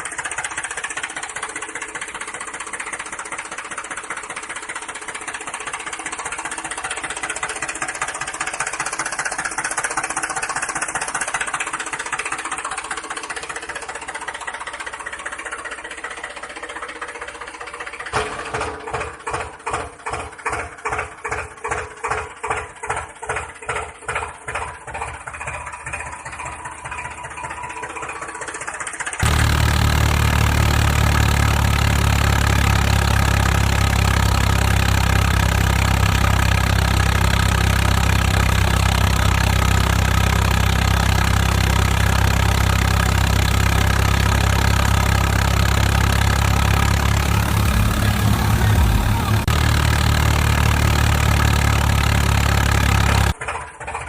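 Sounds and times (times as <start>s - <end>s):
engine chugging slowly: 0.0s - 54.0s
loud steady engine drone: 26.8s - 53.6s.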